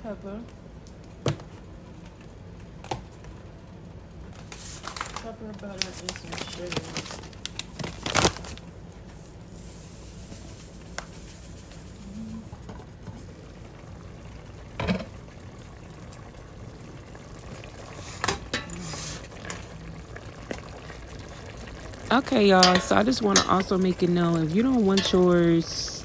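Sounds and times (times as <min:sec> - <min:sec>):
food bubbling in a pot: 0:08.7 - 0:26.0
utensil knocking against pot: 0:22.6 - 0:23.8.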